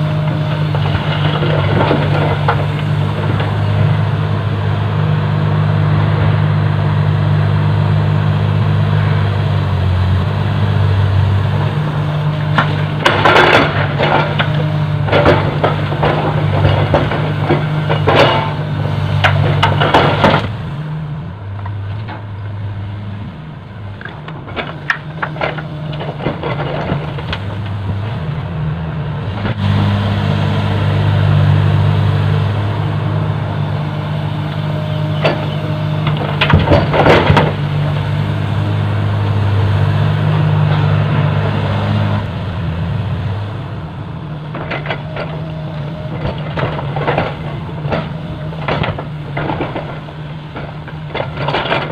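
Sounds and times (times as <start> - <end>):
excavator diesel engine: 0.0 - 51.9
soil and rock dropping into truck: 0.3 - 3.7, 12.3 - 20.6, 24.0 - 28.0, 34.9 - 38.2, 44.4 - 51.9.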